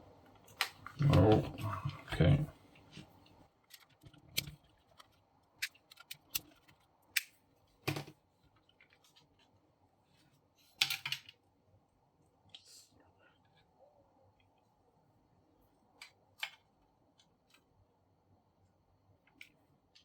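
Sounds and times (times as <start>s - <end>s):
plastic parts clicking: 3.7s - 8.1s.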